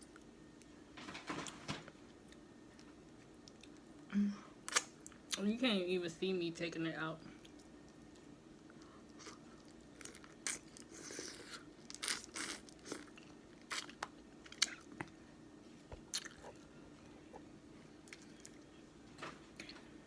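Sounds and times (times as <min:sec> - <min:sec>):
chewing: 0:16.0 - 0:16.7, 0:17.3 - 0:18.7.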